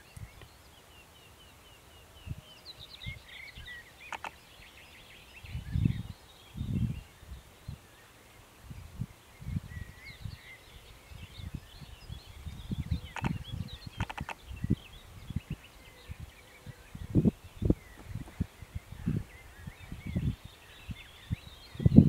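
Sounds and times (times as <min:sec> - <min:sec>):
small birds chirping: 0:00.0 - 0:22.0
sharp clicks: 0:04.1 - 0:04.4, 0:13.1 - 0:13.4, 0:14.0 - 0:14.4.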